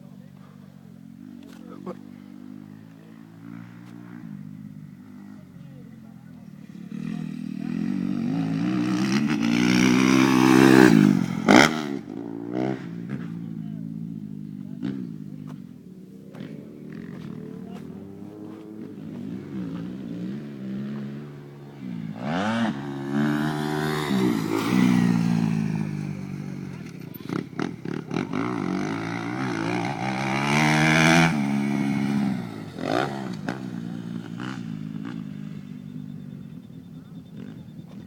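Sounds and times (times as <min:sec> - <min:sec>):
motorcycle engines revving: 0:00.0 - 0:38.0.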